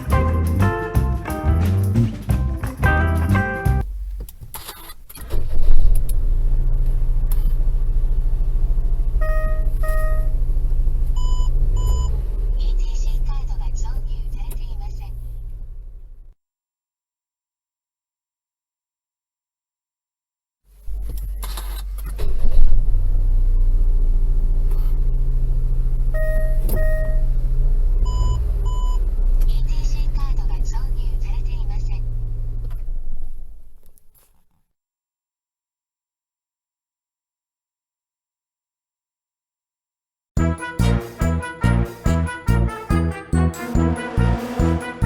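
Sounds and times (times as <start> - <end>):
car engine starting and idling: 6.0 - 16.3
short electronic beeps: 9.2 - 10.4, 26.2 - 27.3.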